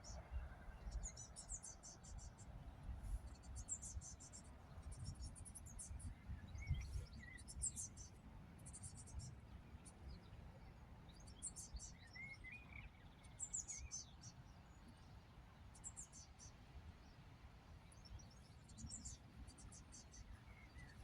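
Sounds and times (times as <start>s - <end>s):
small birds chirping trills: 17.8s - 21.0s.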